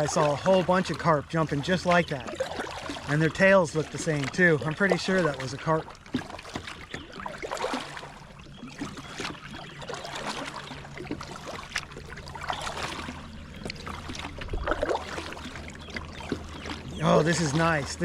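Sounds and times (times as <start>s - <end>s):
water splashing around kayak: 0.0s - 18.0s.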